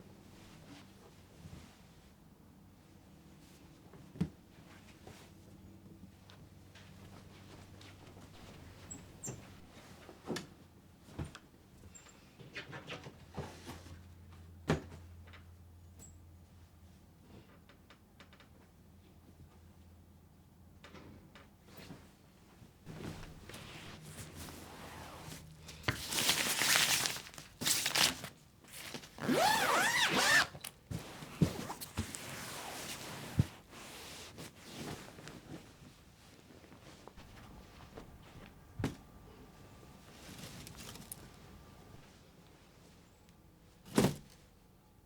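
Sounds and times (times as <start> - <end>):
low steady hum: 22.8 - 27.4, 37.1 - 45.0
material rustling and crinkling: 22.9 - 39.1, 39.9 - 42.1.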